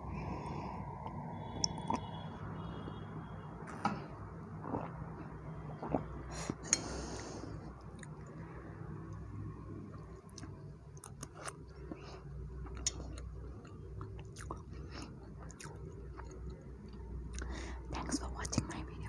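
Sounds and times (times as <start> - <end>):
chewing soft cake: 1.0 - 2.2, 4.6 - 8.5, 9.9 - 19.0.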